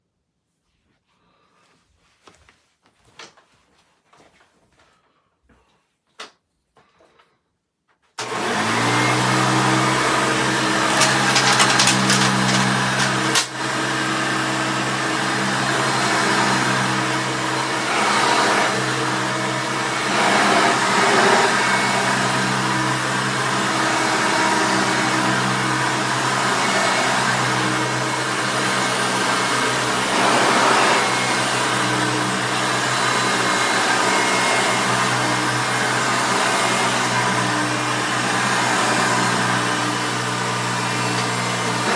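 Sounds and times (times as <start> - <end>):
vacuum cleaner motor humming: 8.2 - 41.9
debris crackling in vacuum: 10.9 - 13.5.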